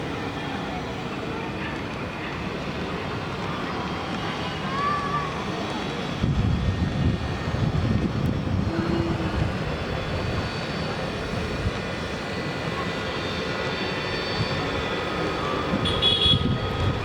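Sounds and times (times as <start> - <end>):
drone motors whining: 8.2 - 10.6.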